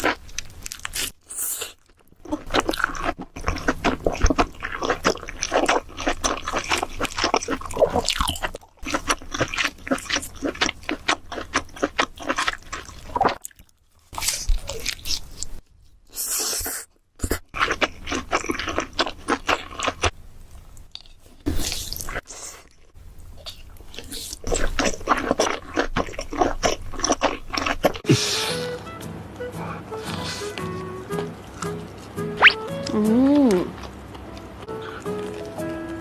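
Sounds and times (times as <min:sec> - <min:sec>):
crunchy food chewing: 0:00.0 - 0:28.0.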